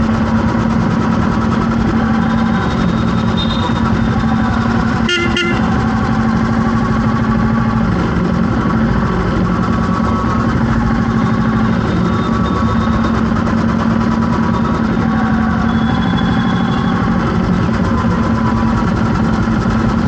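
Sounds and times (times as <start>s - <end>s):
vehicle engine running: 0.0s - 20.0s
car horn honk: 2.8s - 6.0s.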